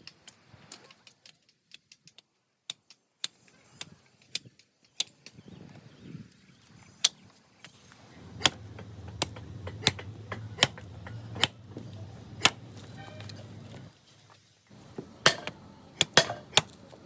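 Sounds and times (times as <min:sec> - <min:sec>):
low steady hum: 0:07.7 - 0:14.0
sharp knocks on wood: 0:08.4 - 0:11.6.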